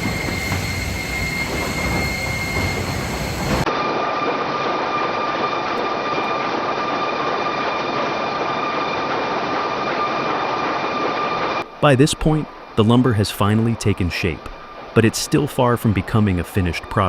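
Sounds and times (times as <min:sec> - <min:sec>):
sawmill machinery rumbling: 0:00.0 - 0:03.7.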